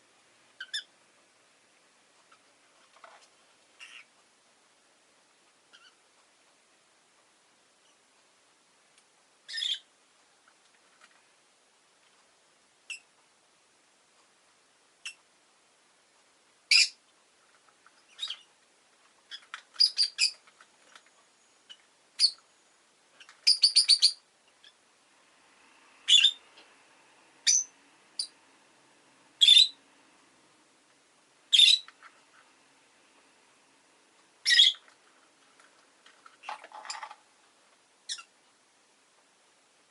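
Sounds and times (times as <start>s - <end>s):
lovebird chirping: 0.6s - 0.9s, 3.8s - 4.1s, 5.7s - 6.0s, 9.4s - 9.9s, 12.8s - 13.1s, 16.7s - 17.0s, 18.0s - 18.5s, 19.3s - 24.8s, 26.0s - 26.5s, 27.4s - 28.4s, 29.4s - 29.8s, 31.5s - 32.0s, 34.4s - 34.9s, 38.0s - 38.4s.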